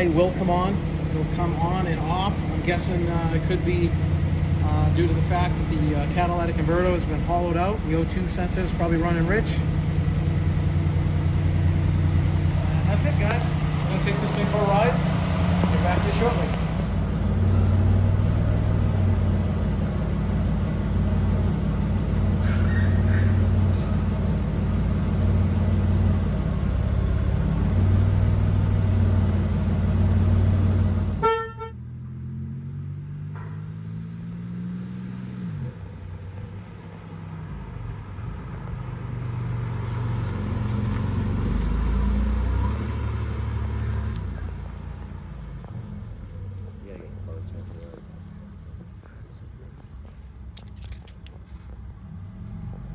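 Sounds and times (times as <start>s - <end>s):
car engine idling loudly: 0.0s - 31.7s.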